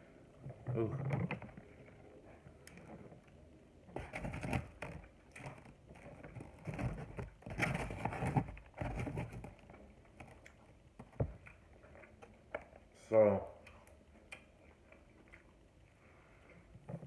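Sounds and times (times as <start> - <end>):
chewing with wet mouth clicks: 11.4 - 12.9, 13.6 - 16.6.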